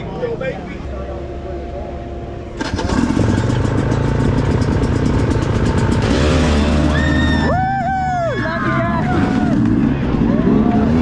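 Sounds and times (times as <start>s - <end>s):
dirt bike engine revving: 2.6s - 7.8s, 8.4s - 11.0s.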